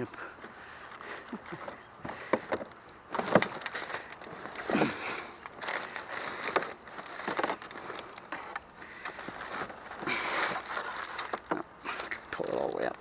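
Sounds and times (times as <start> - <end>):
rustling of junk being handled: 0.0 - 13.0.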